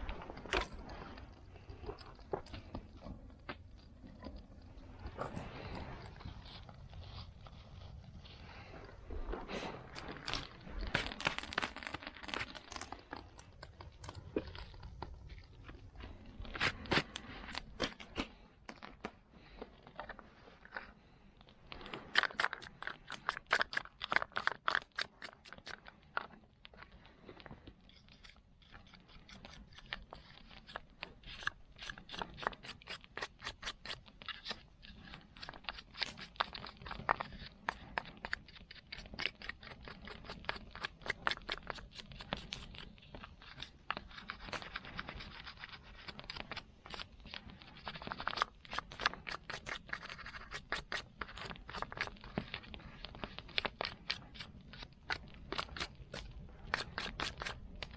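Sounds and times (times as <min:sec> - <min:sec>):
saw scraping: 0:22.0 - 0:25.8, 0:29.2 - 0:37.4, 0:38.8 - 0:52.2, 0:55.6 - 0:57.6.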